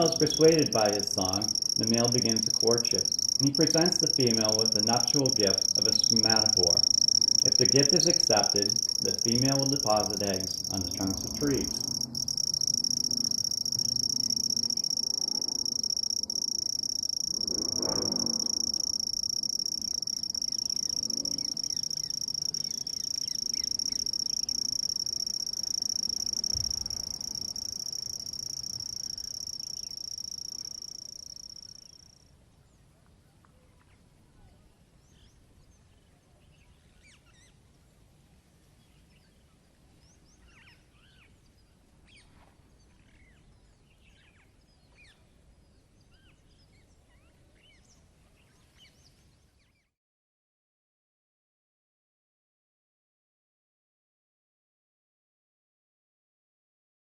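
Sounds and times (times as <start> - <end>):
faint high chirps: 0.0 - 32.1
bush cricket trilling: 0.0 - 32.2.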